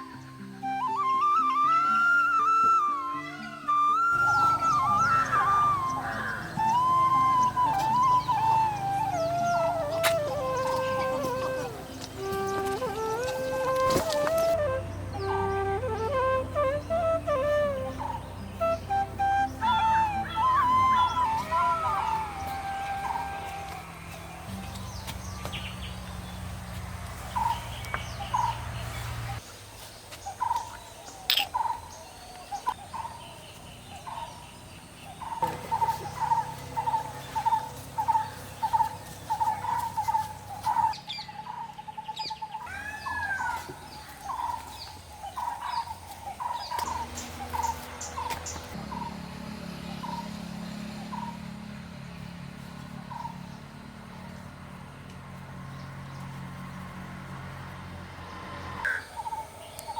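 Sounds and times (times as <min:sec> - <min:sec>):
bird calling repeated notes: 0:00.6 - 0:26.0, 0:58.8 - 0:59.9
higher bird chirps: 0:27.2 - 0:49.2, 0:58.6 - 0:59.9.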